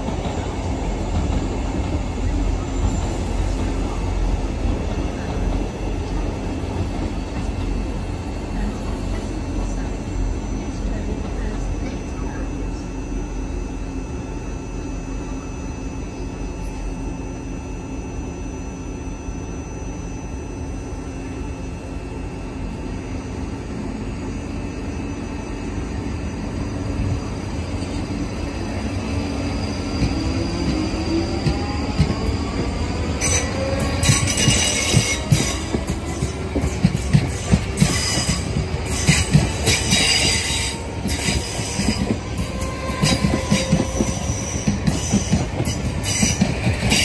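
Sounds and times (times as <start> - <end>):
electric train hum: 0.0 - 47.0
train passing close by: 0.0 - 47.0
high wheel squeals: 37.3 - 47.0.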